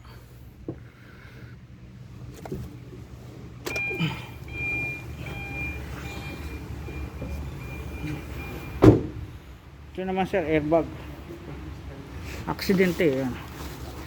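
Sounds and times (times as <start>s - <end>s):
steady low hum: 0.0s - 14.0s
vehicle warning chime beeping: 3.6s - 8.9s.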